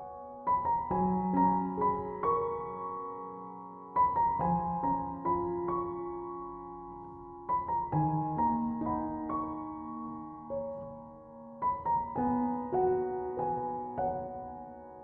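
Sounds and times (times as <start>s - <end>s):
soft slow piano music: 0.0s - 15.0s.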